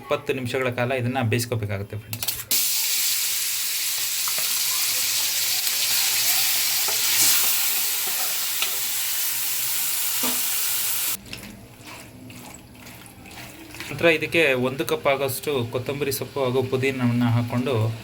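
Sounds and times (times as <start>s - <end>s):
chicken sizzling in hot oil: 2.5s - 11.2s
stirring scrapes: 11.2s - 14.5s.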